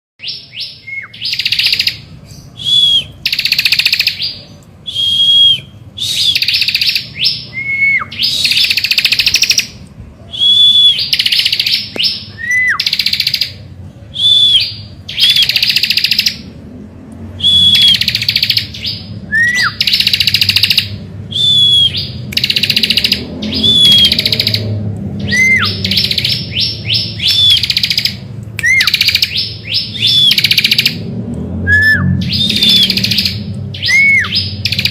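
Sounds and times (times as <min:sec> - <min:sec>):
bird singing buzzy trills: 0:00.2 - 0:34.9.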